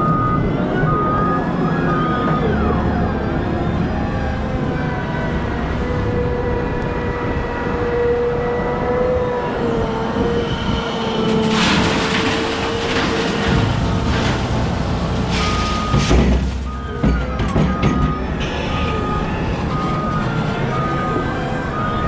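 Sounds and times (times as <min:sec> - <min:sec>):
wheel loader whining: 0:06.0 - 0:22.0.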